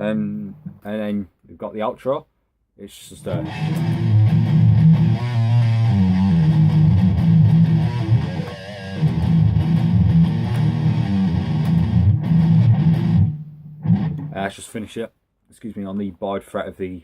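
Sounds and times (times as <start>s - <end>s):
electric guitar riff on low notes: 3.2s - 14.4s.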